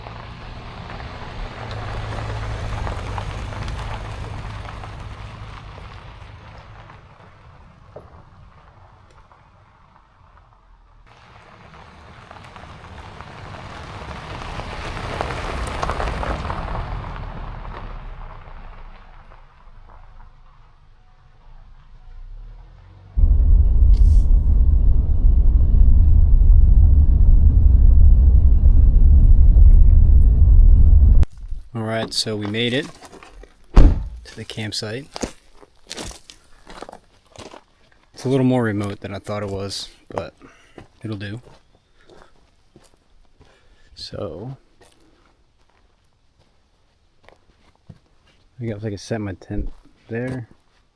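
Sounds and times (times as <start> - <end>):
vehicle engine hum: 0.0 - 32.8, 33.7 - 34.8
road and tyre noise: 0.0 - 50.9.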